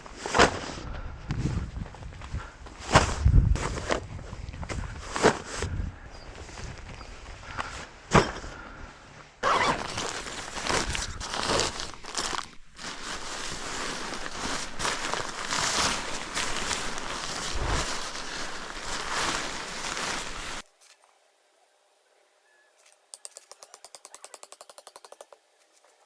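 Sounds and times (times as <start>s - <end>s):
scrapes and crunches: 9.4s - 21.0s
tent fabric rustling: 9.4s - 21.1s.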